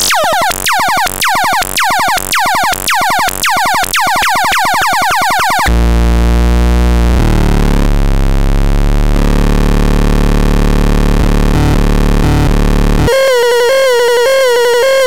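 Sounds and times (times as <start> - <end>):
falling electronic chirps: 0.0 - 5.8, 13.1 - 15.0
low electronic buzzing drone: 5.6 - 15.0.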